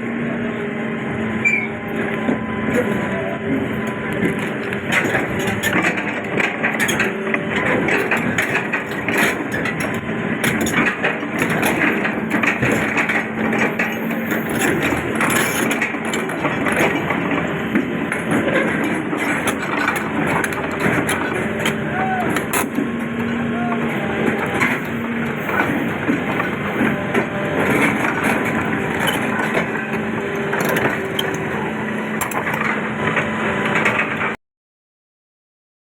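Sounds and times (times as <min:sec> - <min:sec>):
excavator engine running: 0:00.0 - 0:34.4
metal knocks and clanks: 0:02.7 - 0:23.1, 0:24.3 - 0:31.6.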